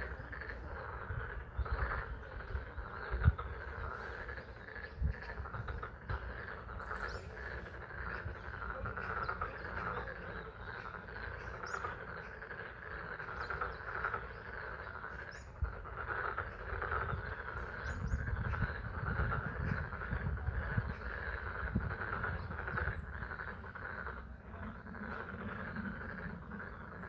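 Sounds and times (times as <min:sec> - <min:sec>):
frogs calling: 0:00.0 - 0:27.0.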